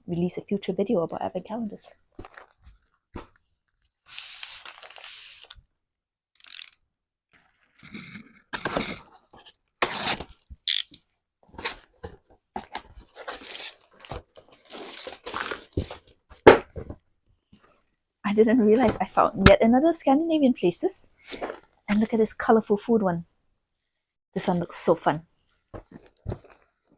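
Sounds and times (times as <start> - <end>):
cardboard boxes crinkling and knocking: 1.9 - 5.0, 7.4 - 10.6, 11.5 - 17.0, 25.5 - 26.9
paper rustling: 4.0 - 5.6.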